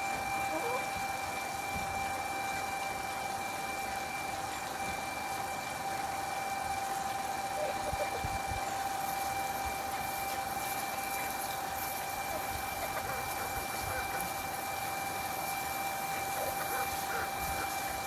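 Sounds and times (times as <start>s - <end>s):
small motor whining: 0.0s - 18.0s.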